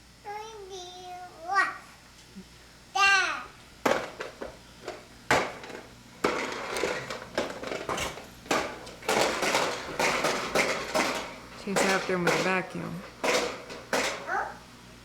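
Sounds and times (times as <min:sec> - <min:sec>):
vacuum cleaner clattering and knocking: 0:03.8 - 0:14.3.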